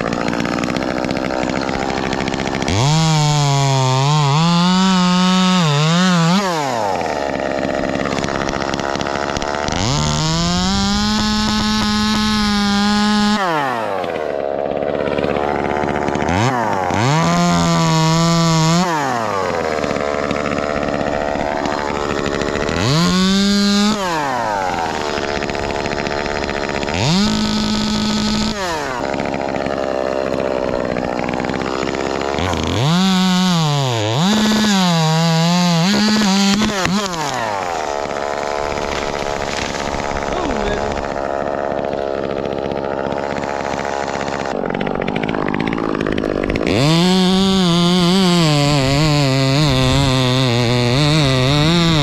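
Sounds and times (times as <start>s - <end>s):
chainsaw revving: 0.0s - 52.0s.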